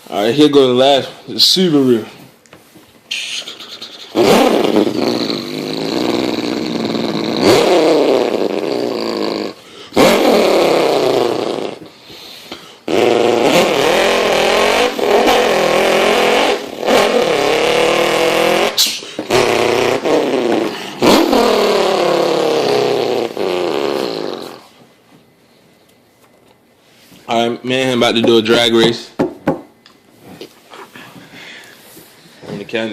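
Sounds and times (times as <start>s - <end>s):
person imitating engine with mouth: 3.1s - 12.0s, 12.6s - 24.8s.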